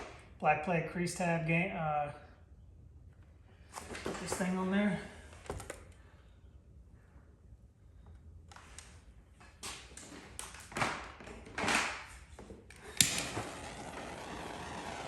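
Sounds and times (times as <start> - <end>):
sharp snap: 13.0 - 13.5.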